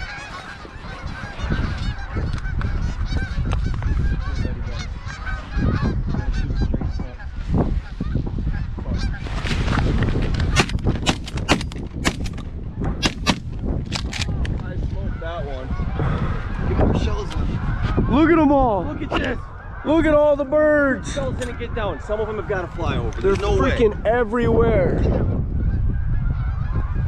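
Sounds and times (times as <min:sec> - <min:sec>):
sharp close goose honks: 0:00.0 - 0:07.3
flock of geese honking: 0:00.0 - 0:09.5, 0:15.0 - 0:24.0, 0:24.9 - 0:27.0.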